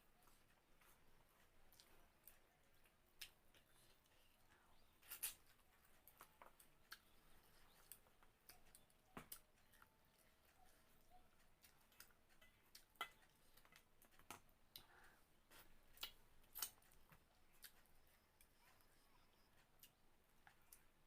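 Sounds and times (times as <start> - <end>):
person chewing: 1.6 - 21.0.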